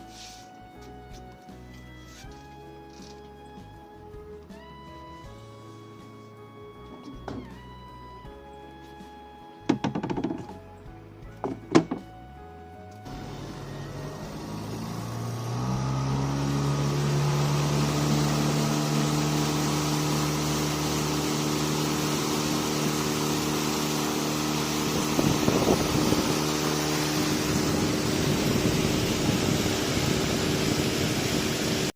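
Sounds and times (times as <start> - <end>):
boat engine speeding up: 13.1 - 31.9.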